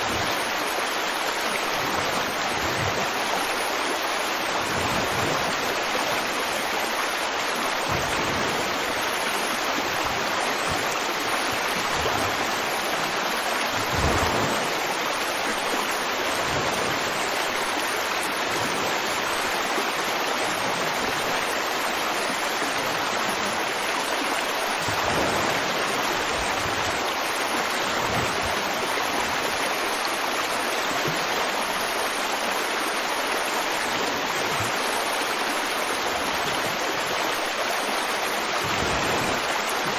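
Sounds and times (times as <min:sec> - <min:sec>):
river water rushing over rocks: 0:00.0 - 0:39.9
water splash: 0:06.9 - 0:19.8, 0:24.4 - 0:29.6, 0:38.3 - 0:39.9.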